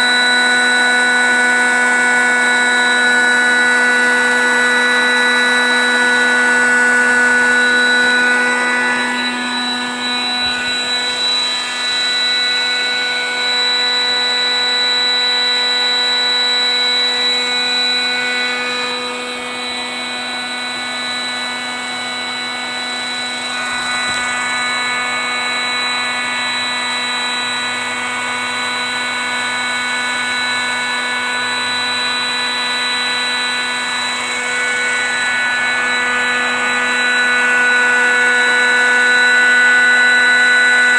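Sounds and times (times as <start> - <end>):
electric air pump whining: 0.0 - 40.9.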